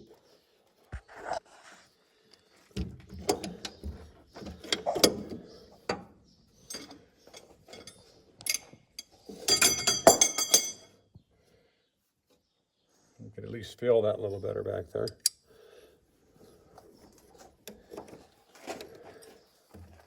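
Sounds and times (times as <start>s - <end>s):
metal tools clicking and scraping: 3.2s - 10.9s, 15.0s - 15.4s
ringing metallic clatter: 6.6s - 10.9s.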